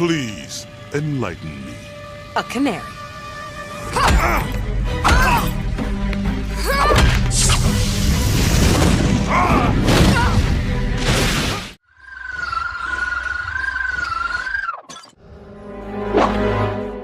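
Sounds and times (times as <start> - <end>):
dramatic action music: 0.0 - 11.8.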